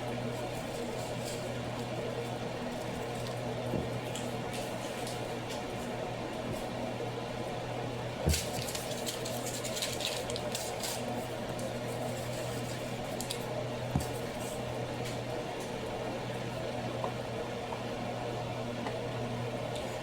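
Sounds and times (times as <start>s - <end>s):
wet squishing and crackling stirring: 0.1s - 6.0s, 7.4s - 15.8s.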